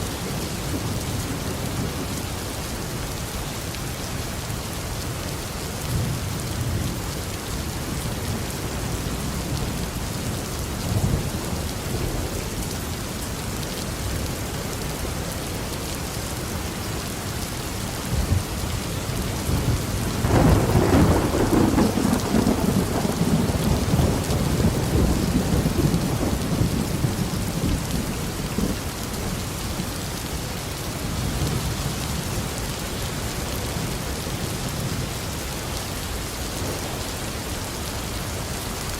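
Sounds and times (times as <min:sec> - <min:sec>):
heavy rain: 0:00.0 - 0:38.9
distant thunder rumbling: 0:19.4 - 0:29.2
loud thunderclap: 0:19.5 - 0:28.0.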